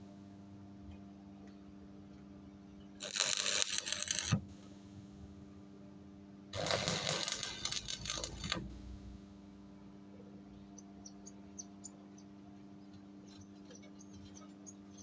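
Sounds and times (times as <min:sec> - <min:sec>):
welding arc crackling: 0:03.0 - 0:05.3, 0:06.6 - 0:09.5.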